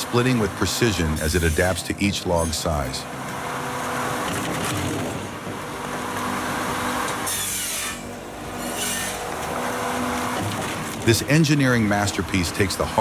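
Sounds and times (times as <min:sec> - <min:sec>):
firewood processor running: 0:02.6 - 0:13.0.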